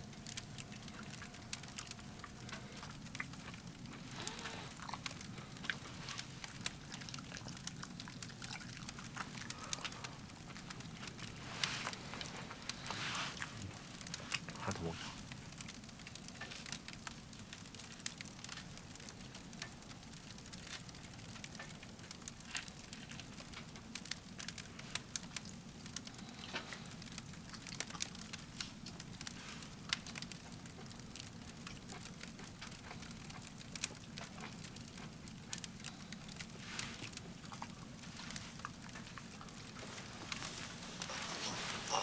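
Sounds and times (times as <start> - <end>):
firewood crackling in stove: 0.0 - 42.0.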